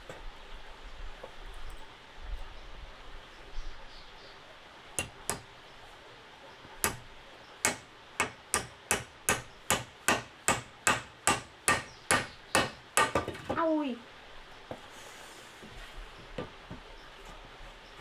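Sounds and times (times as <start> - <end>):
hammer strikes: 5.0 - 5.5, 6.8 - 13.6.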